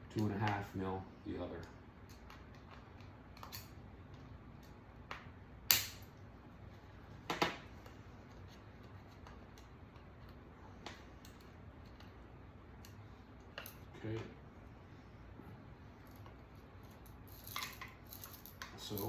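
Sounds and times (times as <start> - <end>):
metal parts clicking and knocking: 16.9 - 19.0.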